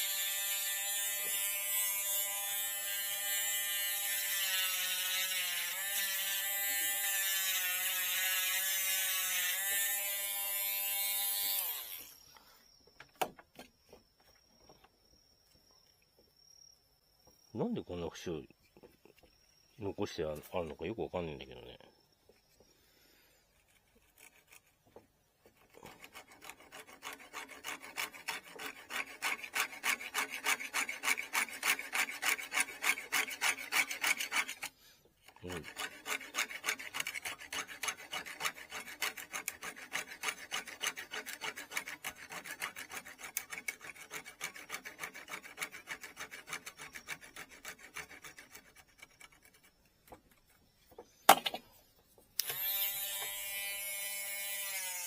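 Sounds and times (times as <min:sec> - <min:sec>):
abrasive rubbing on bamboo rod: 0:22.6 - 0:51.4.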